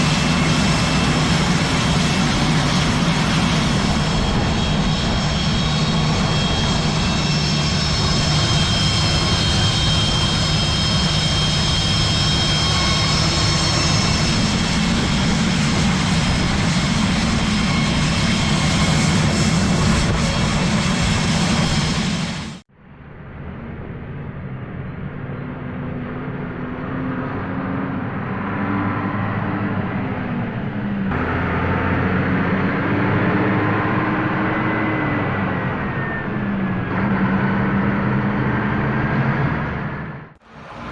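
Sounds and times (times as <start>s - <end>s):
jet turbine whining: 0.0s - 22.7s, 27.8s - 40.9s.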